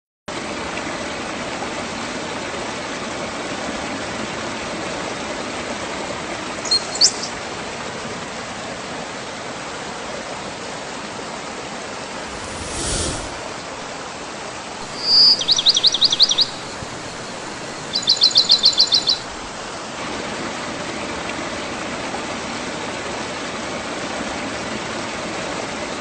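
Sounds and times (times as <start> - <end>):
bird chirps: 6.6 - 7.3, 14.8 - 19.3
waterfall roaring: 14.8 - 20.2.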